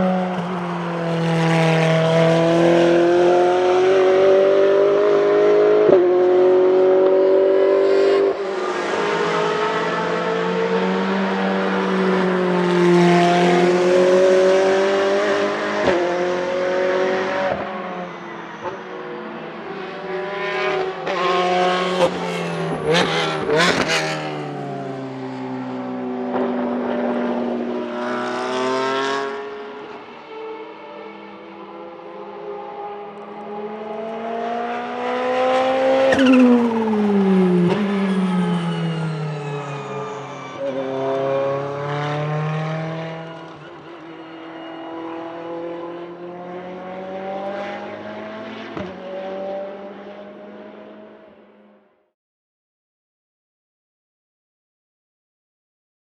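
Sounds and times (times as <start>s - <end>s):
racing car engine accelerating: 0.1s - 17.7s, 31.2s - 43.6s, 44.4s - 51.3s.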